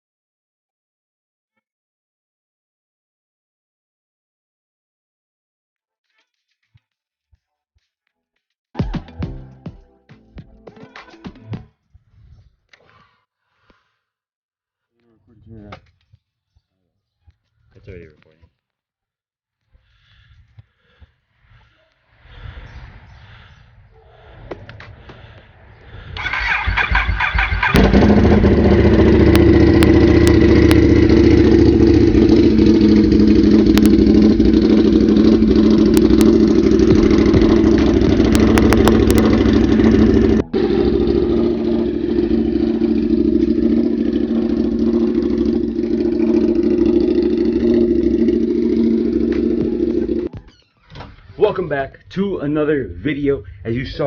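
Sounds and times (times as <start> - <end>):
motorcycle starter cranking: 26.2 - 41.2
motorcycle engine idling: 26.2 - 50.3.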